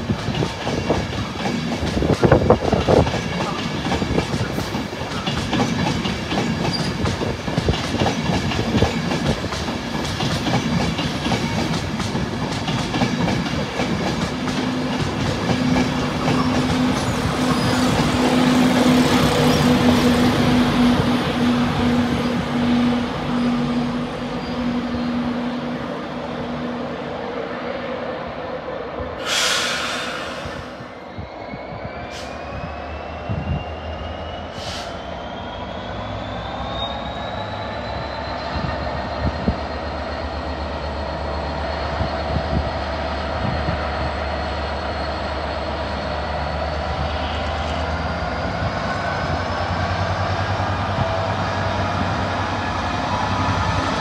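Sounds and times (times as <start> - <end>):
train wheels clicking over rail joints: 0.0 - 21.9
burst of hiss: 29.2 - 30.8.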